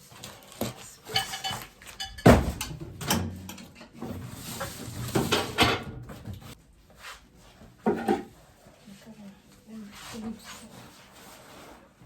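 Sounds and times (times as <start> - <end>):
household objects knocking and rustling: 0.5 - 6.6, 7.6 - 8.4.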